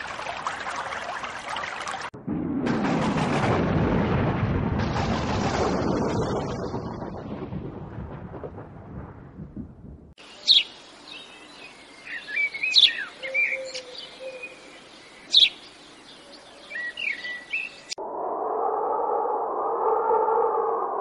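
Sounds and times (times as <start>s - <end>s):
storm rumble: 2.1s - 10.2s
songbirds chirping and whistling: 10.2s - 18.0s.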